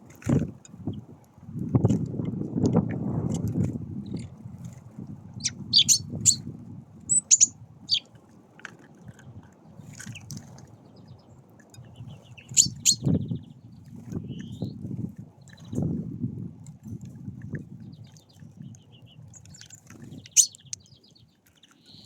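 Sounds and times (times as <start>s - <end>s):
small birds chirping: 5.4s - 6.4s, 7.1s - 8.1s, 9.0s - 13.6s, 14.2s - 14.7s, 18.0s - 22.0s.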